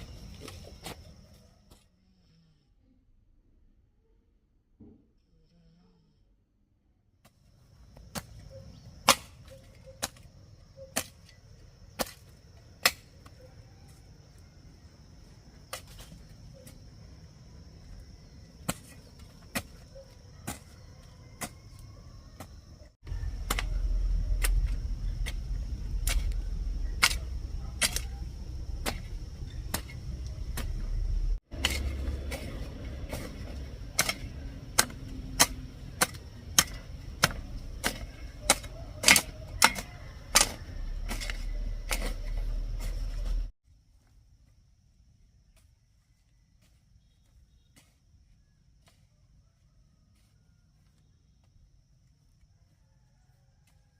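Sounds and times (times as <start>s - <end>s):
low rumble: 23.1s - 37.9s.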